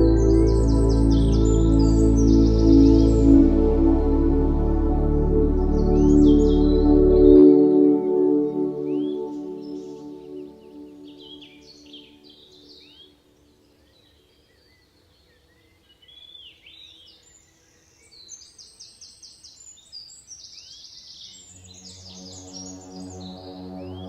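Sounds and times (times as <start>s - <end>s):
birds chirping: 0.0s - 13.0s
soft ambient music: 0.0s - 13.8s, 21.4s - 24.0s.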